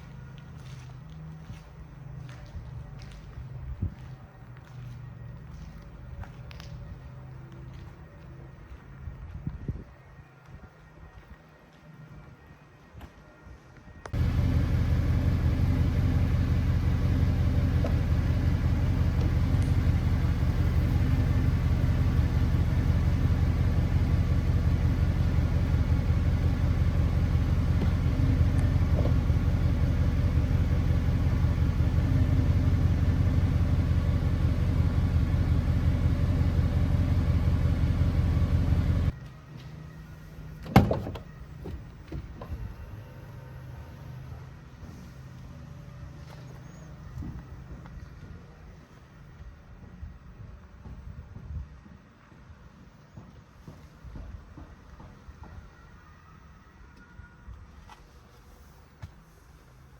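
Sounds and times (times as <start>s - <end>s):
car engine idling: 14.2s - 39.2s.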